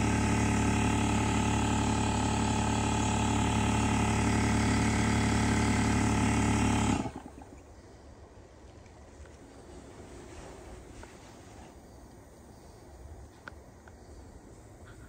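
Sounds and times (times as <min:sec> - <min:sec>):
motor running: 0:00.0 - 0:07.7.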